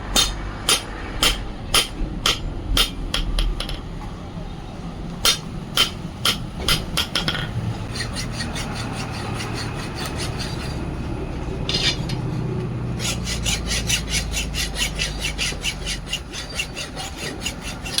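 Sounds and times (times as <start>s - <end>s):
hand tool striking metal: 0.0s - 3.8s, 5.2s - 7.5s, 11.6s - 12.4s.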